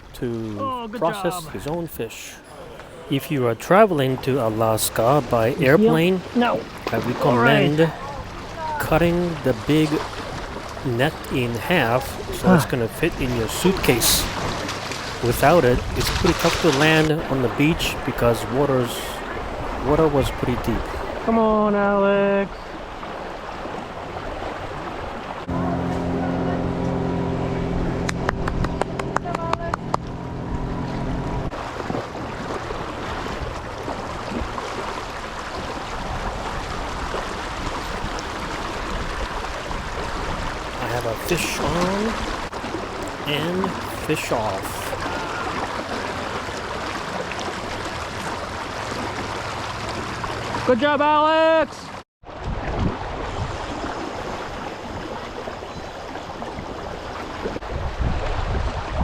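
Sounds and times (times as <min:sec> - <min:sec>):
river water rushing: 0:00.0 - 0:21.3, 0:22.7 - 0:50.7
steady hum: 0:25.5 - 0:31.5
wind buffeting microphone: 0:35.5 - 0:40.9, 0:56.6 - 0:59.0.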